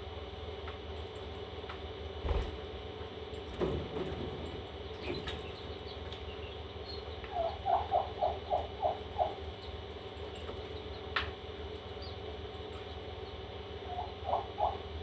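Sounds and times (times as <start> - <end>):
steady hum: 2.0 - 3.4
parrot chicks peeping: 4.8 - 9.9.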